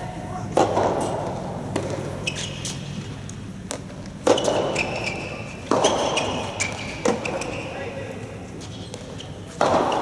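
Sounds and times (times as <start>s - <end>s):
shoes squeaking on floor: 2.1s - 3.1s, 4.2s - 8.0s, 8.6s - 10.0s
tennis ball hitting rackets: 9.5s - 10.0s.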